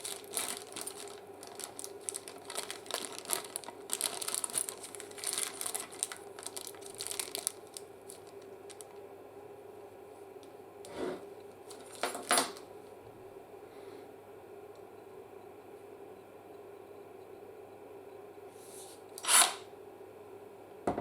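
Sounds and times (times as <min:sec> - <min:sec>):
packaging rustle: 0:00.0 - 0:09.0, 0:11.7 - 0:12.6
faint steady hum: 0:00.0 - 0:21.0.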